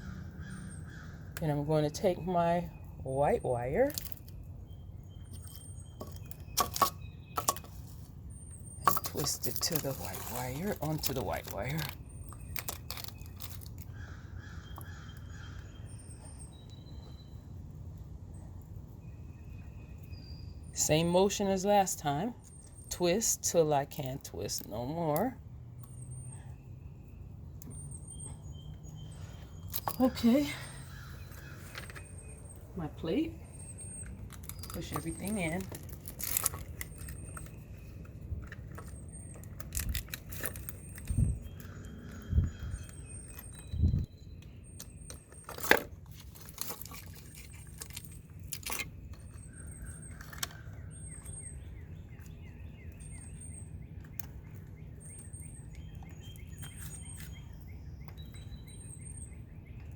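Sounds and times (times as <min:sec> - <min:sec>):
bird calls: 0:00.0 - 0:17.5, 0:19.1 - 0:59.9
thin high bird chirps: 0:00.0 - 0:17.6, 0:24.4 - 0:59.9
wires clicking and clinking: 0:08.8 - 0:13.9, 0:33.9 - 0:42.2.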